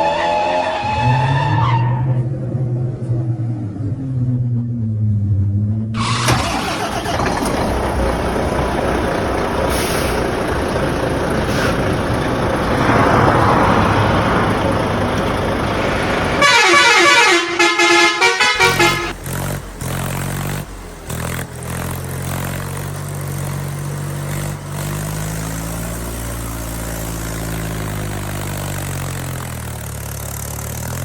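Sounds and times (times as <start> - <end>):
loud vehicle noise: 0.0 - 31.0
horn honking short toots: 16.4 - 19.2.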